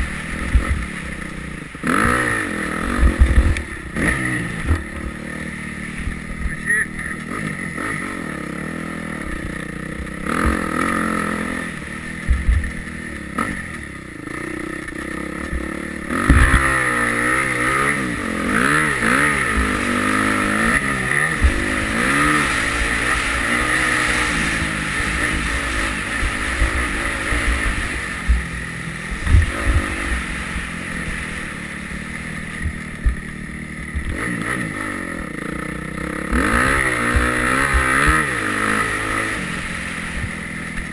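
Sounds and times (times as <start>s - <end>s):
dirt bike engine revving: 0.0s - 40.9s
low thumps: 2.8s - 5.2s, 12.2s - 13.6s, 15.4s - 16.9s.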